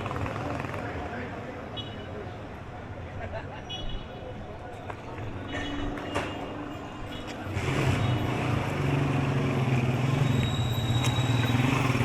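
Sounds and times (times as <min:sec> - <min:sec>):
street noise: 0:00.0 - 0:12.0
vehicle engine droning: 0:07.5 - 0:12.0.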